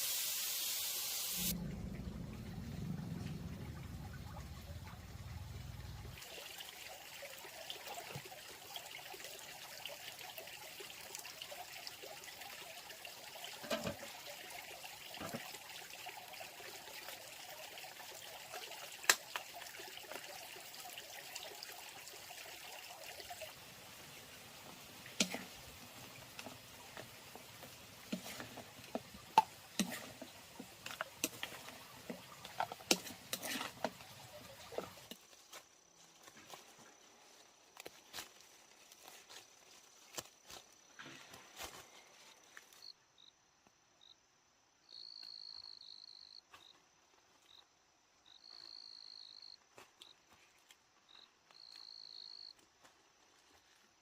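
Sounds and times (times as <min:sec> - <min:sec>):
water trickling: 0:01.2 - 0:35.3.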